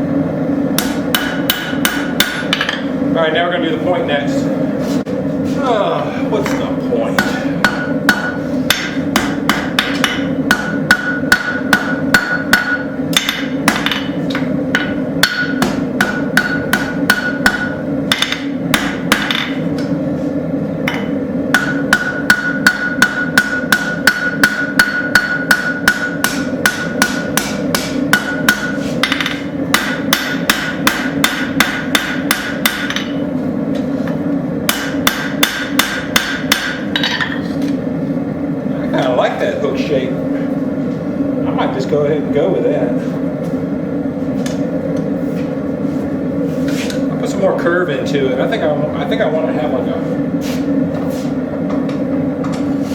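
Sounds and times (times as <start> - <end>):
hammer striking metal on anvil: 0.8 - 2.9, 7.2 - 20.0, 20.8 - 33.2, 34.7 - 37.4.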